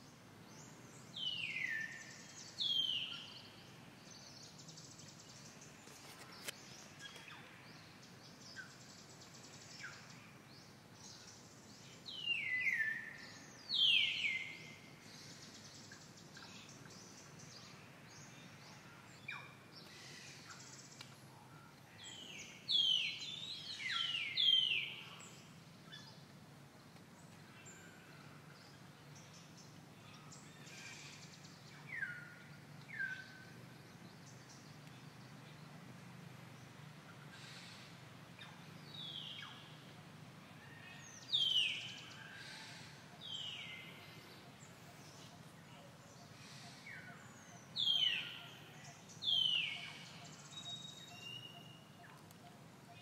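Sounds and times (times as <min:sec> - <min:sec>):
background hiss: 0:00.0 - 0:53.0
birds whistling: 0:46.1 - 0:52.1.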